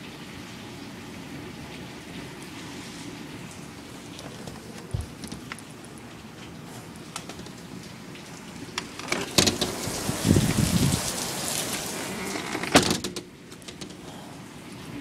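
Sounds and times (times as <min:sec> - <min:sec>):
heavy rain falling: 0:00.0 - 0:15.0
wind: 0:00.0 - 0:15.0
sharp knocks: 0:04.8 - 0:05.6, 0:09.0 - 0:09.8.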